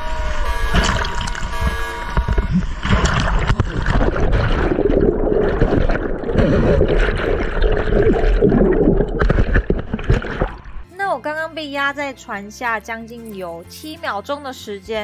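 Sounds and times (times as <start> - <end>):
muffled churning river water: 0.4 - 10.9
background music: 10.6 - 15.0.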